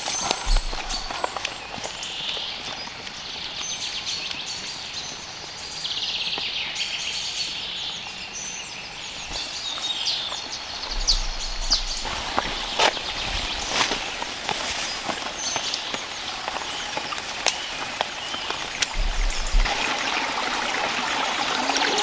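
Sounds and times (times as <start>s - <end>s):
sharp high chirps: 0.0s - 2.2s
bird trill: 0.0s - 2.9s, 8.0s - 19.7s
background hiss: 0.0s - 21.4s
forest birds singing: 0.0s - 21.4s.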